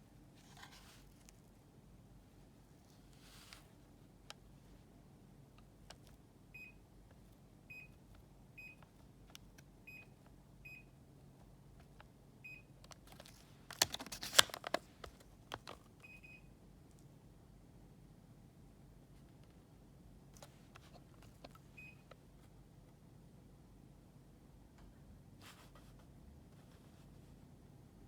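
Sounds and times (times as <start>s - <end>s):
rustling and clattering handling noise: 0.3s - 1.7s, 2.4s - 4.9s, 12.8s - 16.1s, 20.4s - 21.7s
air conditioner high beeps: 6.5s - 6.9s, 7.7s - 8.0s, 8.6s - 8.8s, 9.8s - 11.0s, 12.4s - 12.7s, 16.0s - 16.5s, 21.7s - 22.1s.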